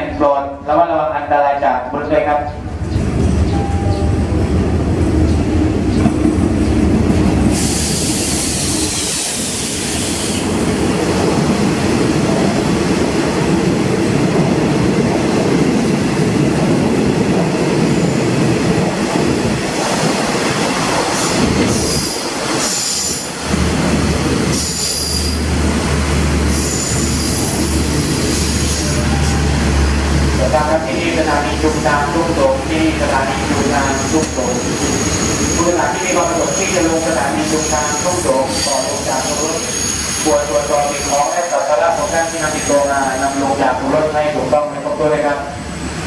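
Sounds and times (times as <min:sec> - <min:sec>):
train coaches rumbling: 0:00.0 - 0:46.0
diesel locomotive engine humming: 0:02.1 - 0:41.0
high squeals from running gear: 0:26.5 - 0:27.6, 0:33.8 - 0:35.6, 0:36.3 - 0:43.4.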